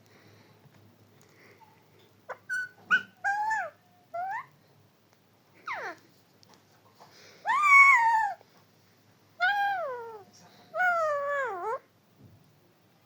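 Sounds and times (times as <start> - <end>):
parrot squawks and whistles: 2.3 - 4.5, 7.5 - 8.4.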